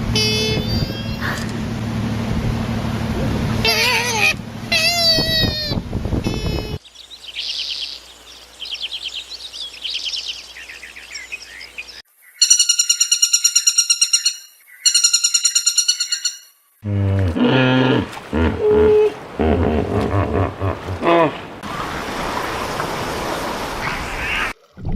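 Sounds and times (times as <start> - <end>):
animal calls rising and falling: 3.6 - 5.8, 13.7 - 21.6
high bird chirps: 6.3 - 16.6.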